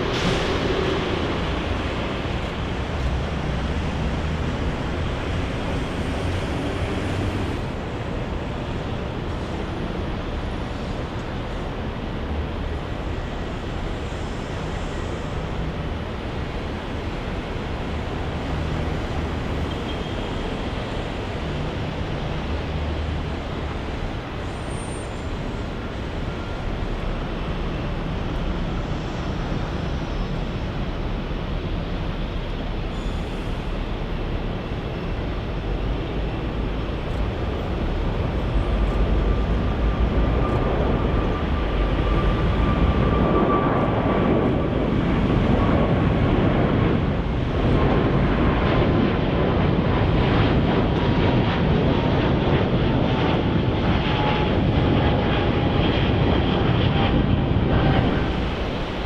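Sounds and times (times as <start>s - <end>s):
jet engines rumbling: 0.0s - 59.0s
faint whine: 53.6s - 59.0s.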